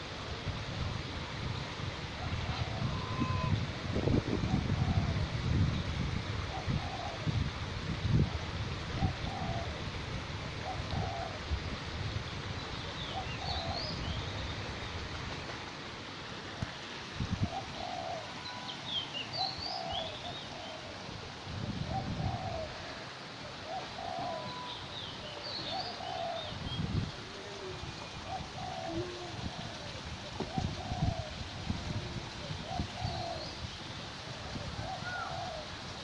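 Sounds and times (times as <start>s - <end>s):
short low bird call: 2.9s - 3.6s.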